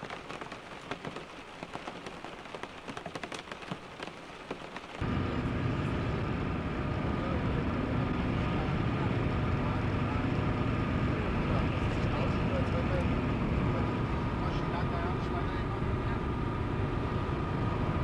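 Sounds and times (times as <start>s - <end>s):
rain pattering on a car: 0.0s - 5.0s
car engine and road noise: 0.0s - 18.0s.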